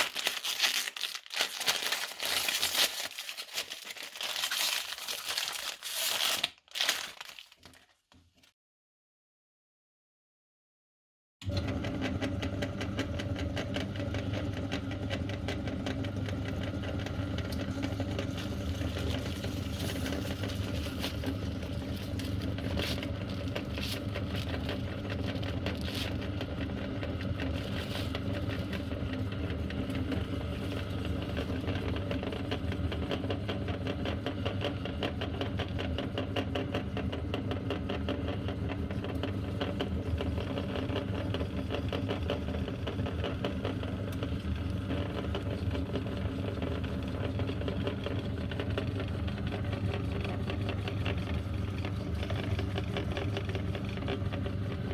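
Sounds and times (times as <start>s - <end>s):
meat grinder motor ticking: 11.4s - 54.9s.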